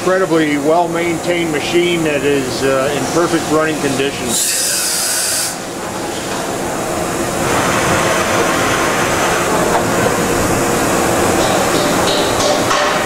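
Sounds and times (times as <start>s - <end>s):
machining center running: 0.0s - 13.0s
machine hiss: 3.6s - 5.7s.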